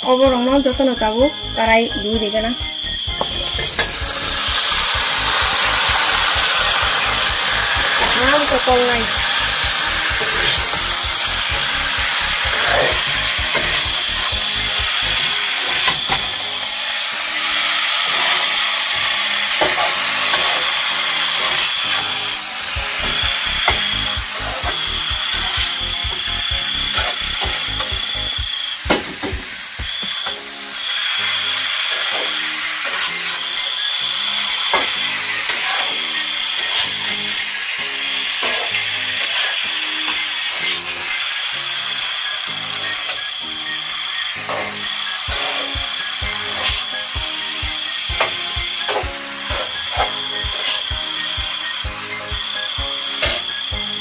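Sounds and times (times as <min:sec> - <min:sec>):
background music with a beat: 0:00.0 - 0:18.2, 0:19.0 - 0:32.4, 0:41.9 - 0:54.0
food sizzling in a pan: 0:00.0 - 0:54.0.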